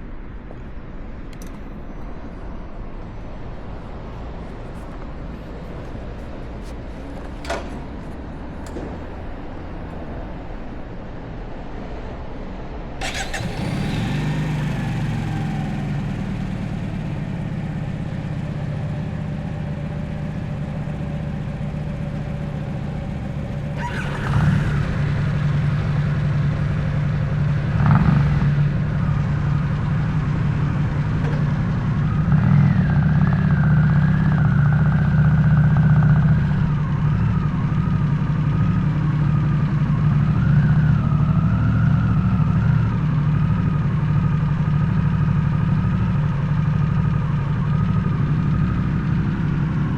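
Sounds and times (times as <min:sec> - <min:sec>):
motorcycle engine running: 0:13.0 - 0:49.9.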